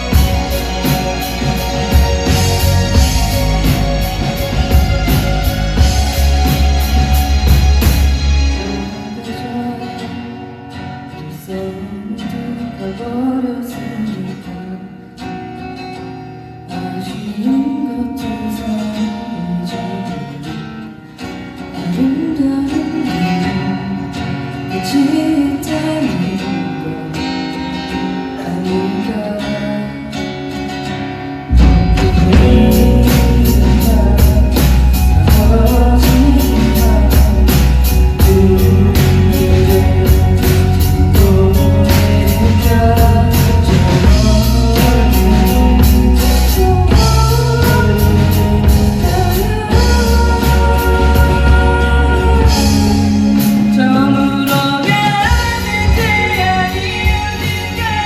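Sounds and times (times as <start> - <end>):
steady drum beat: 0.0 - 9.0, 31.5 - 58.0
person singing: 0.0 - 15.4, 16.7 - 21.0, 21.6 - 30.8, 31.5 - 58.0
rock band playing a ballad: 0.0 - 58.0.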